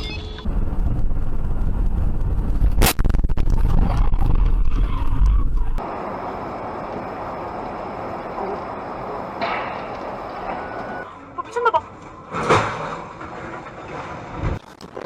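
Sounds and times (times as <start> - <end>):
road and wind rumble in car: 0.0 - 11.1.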